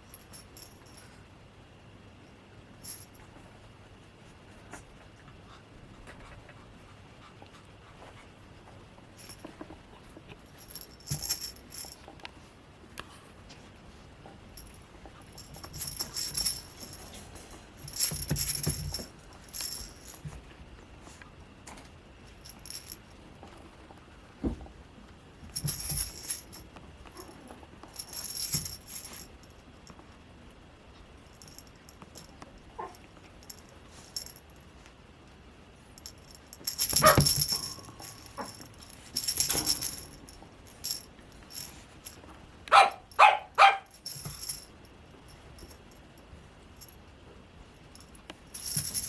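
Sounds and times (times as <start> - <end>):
small bell jingling: 10.6 - 12.0, 14.6 - 20.3, 25.6 - 26.6, 28.0 - 29.3, 36.0 - 42.2, 43.9 - 44.7, 48.0 - 49.0.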